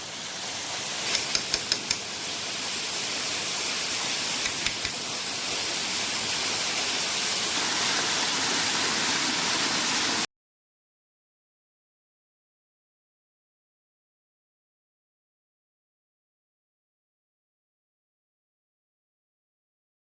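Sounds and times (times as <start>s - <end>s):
waterfall rushing: 3.2s - 10.3s.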